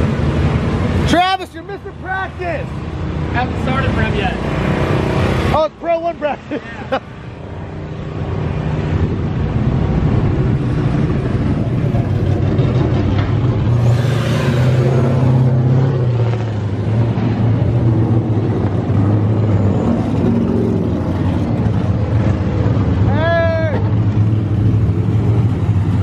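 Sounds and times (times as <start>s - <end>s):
car engines revving: 0.0s - 26.0s
hissing rush: 13.6s - 16.4s.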